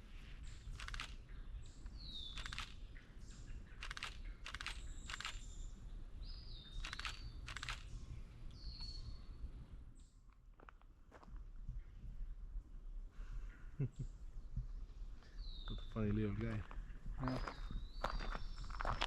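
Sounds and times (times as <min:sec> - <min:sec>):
birds whistling: 0:17.2 - 0:19.0.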